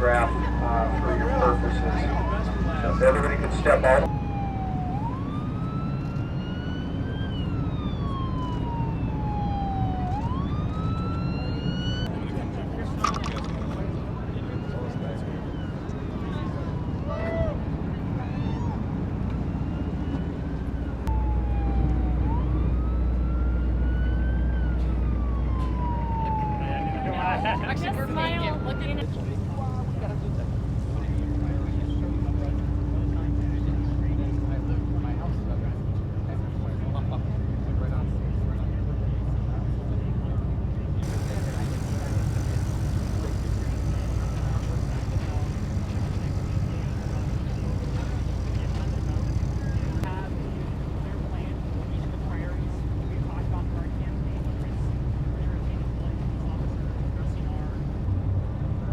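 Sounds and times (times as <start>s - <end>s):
siren wailing: 0.0s - 12.1s, 13.0s - 35.5s, 41.0s - 54.2s
boat engine droning: 0.0s - 39.8s, 40.4s - 58.9s
low steady rumble: 27.2s - 58.9s.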